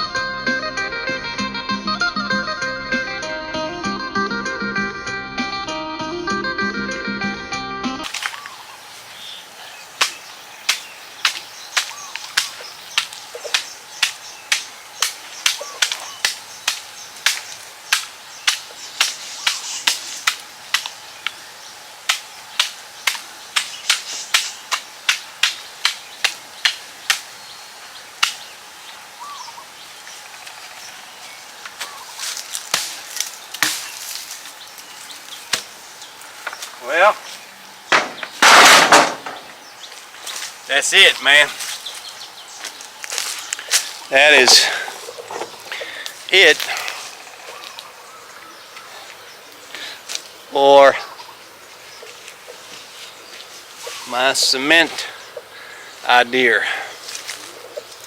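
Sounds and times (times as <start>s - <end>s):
faint bird chirps: 8.2s - 20.3s, 27.0s - 32.4s, 40.9s - 56.2s
sharp knocks: 37.9s - 39.6s.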